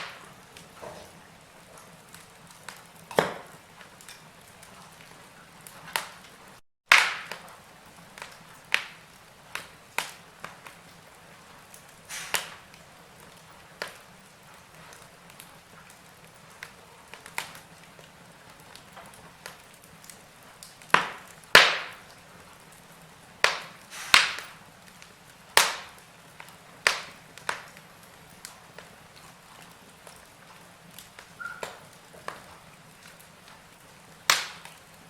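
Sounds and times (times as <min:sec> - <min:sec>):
sharp pops of fire: 0:00.0 - 0:35.0
wood fire crackling: 0:00.0 - 0:35.0
faint hiss: 0:08.6 - 0:12.8, 0:21.7 - 0:28.9.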